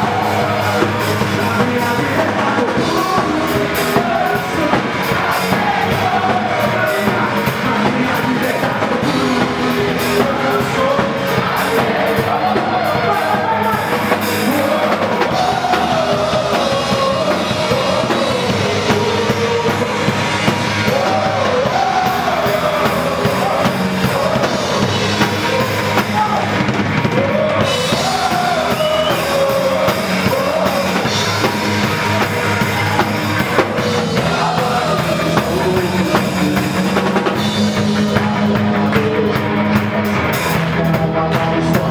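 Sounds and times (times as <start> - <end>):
drum kit: 0.0 - 41.9
gospel rock music: 0.0 - 41.9
person singing: 0.0 - 41.9.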